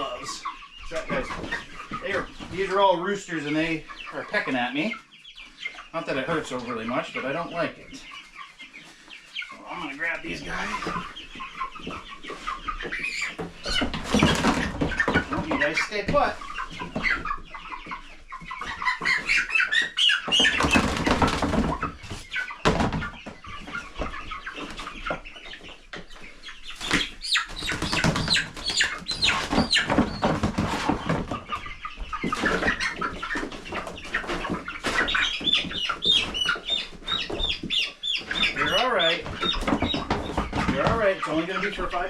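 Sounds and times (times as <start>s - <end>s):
birds scuffling: 0.0s - 42.0s
chickens clucking and squawking: 0.0s - 42.0s
wings flapping: 26.8s - 31.4s.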